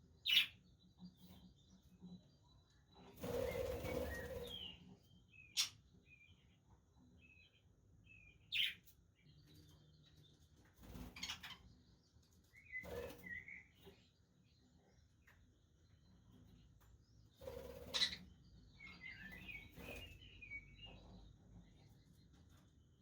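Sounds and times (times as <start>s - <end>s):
budgerigars chirping: 0.3s - 0.5s, 17.8s - 18.3s.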